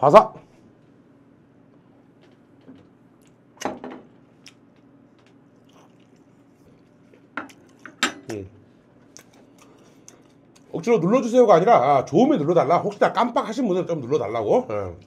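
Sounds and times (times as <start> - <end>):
man chewing with wet mouth sounds: 2.0 - 7.9, 8.9 - 10.7
small mouth clicks: 4.4 - 4.7.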